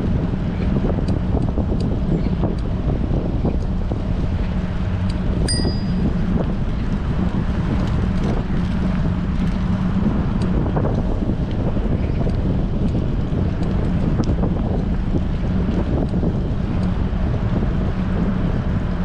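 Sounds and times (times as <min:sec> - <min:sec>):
wind buffeting microphone: 0:00.0 - 0:19.0
short bright ding: 0:05.5 - 0:06.1.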